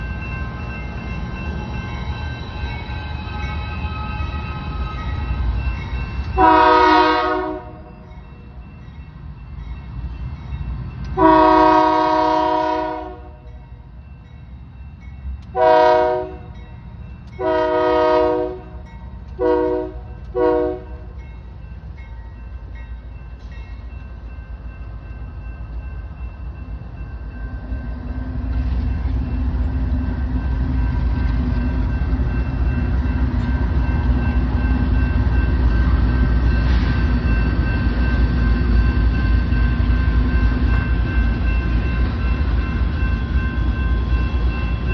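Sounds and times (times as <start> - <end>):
train engines rumbling: 0.0 - 44.9
locomotive air horn blasts: 6.4 - 7.8, 11.2 - 13.4, 15.6 - 16.4, 17.4 - 18.8, 19.4 - 21.1.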